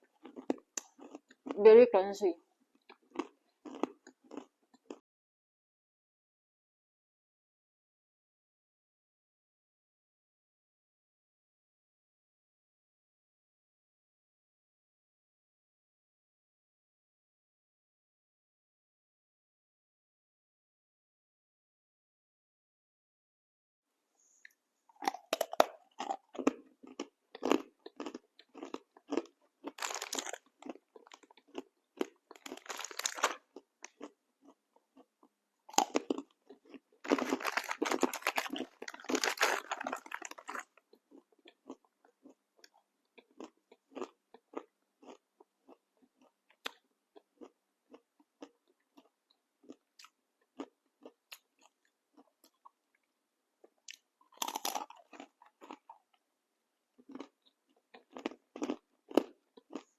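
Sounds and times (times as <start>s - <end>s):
chewing crunchy snack: 0.0s - 1.6s, 2.7s - 5.0s, 24.9s - 52.8s, 53.6s - 56.2s, 57.0s - 59.9s
soft chewing clicks: 0.1s - 1.6s, 2.7s - 5.0s, 24.4s - 56.2s, 57.0s - 59.9s.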